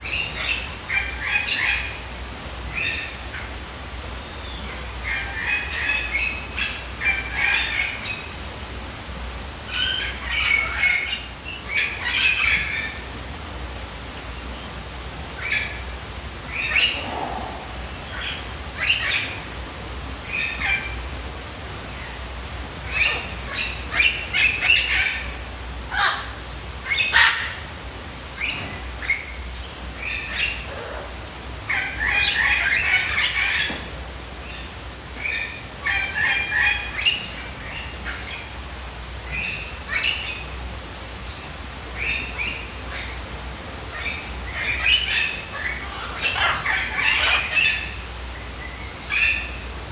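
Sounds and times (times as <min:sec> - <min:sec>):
birds chirping and squawking: 0:00.0 - 0:03.7, 0:04.4 - 0:08.4, 0:09.6 - 0:13.1, 0:15.3 - 0:27.7, 0:28.4 - 0:49.8
steady low hum: 0:00.0 - 0:49.9.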